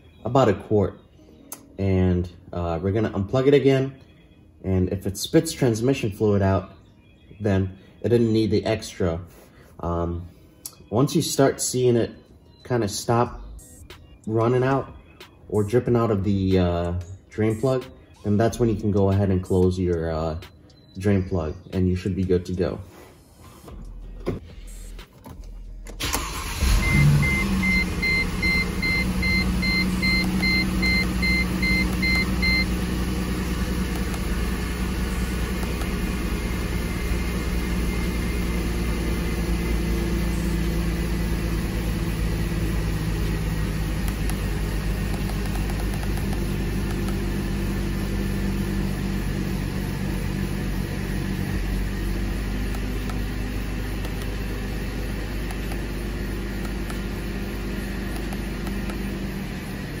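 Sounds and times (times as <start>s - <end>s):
car engine starting and idling: 23.8s - 60.0s
electronic warning beeps: 26.8s - 32.8s.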